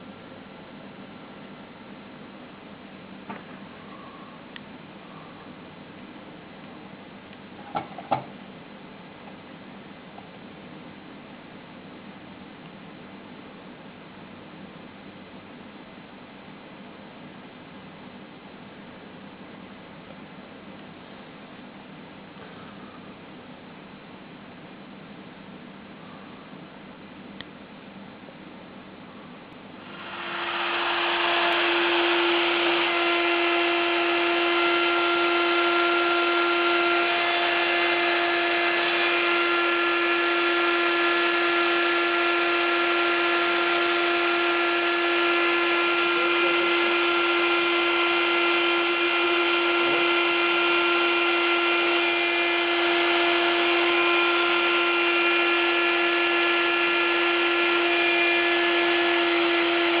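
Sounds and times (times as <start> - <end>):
spindle motor whining: 29.6 - 60.0.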